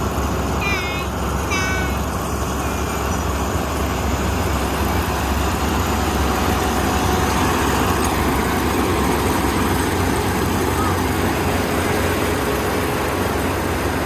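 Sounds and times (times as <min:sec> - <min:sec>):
combine harvester engine droning: 0:00.0 - 0:14.0.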